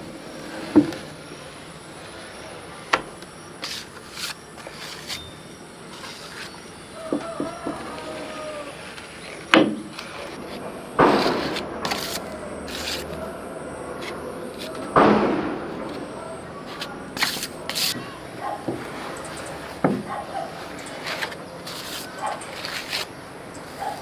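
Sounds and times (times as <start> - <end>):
tools scraping: 2.0 - 24.0
tools knocking: 14.0 - 21.4.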